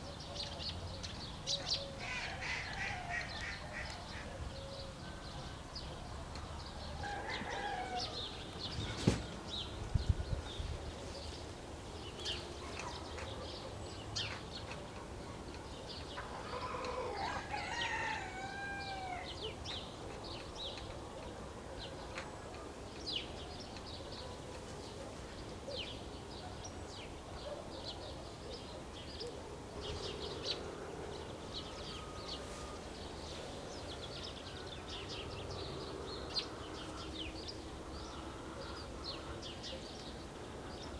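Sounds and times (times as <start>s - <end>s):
songbirds chirping: 0.0s - 40.9s
rooster crowing: 7.0s - 8.4s, 16.4s - 19.4s.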